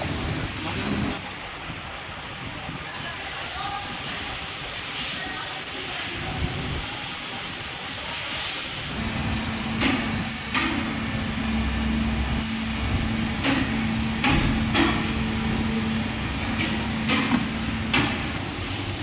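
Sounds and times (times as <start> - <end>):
steady hiss: 0.0 - 13.8
machine hum: 9.0 - 19.0
sharp knocks: 13.4 - 15.2, 16.5 - 18.4.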